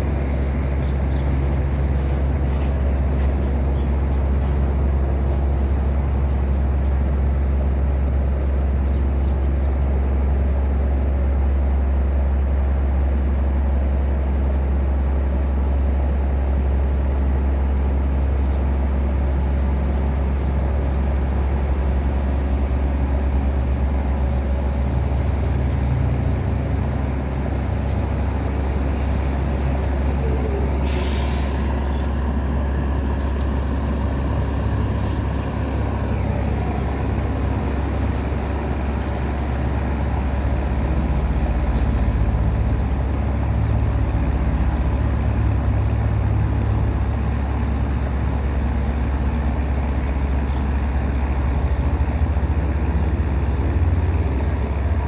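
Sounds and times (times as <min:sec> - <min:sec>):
boat engine droning: 0:00.0 - 0:55.0
brief hiss: 0:30.7 - 0:32.1.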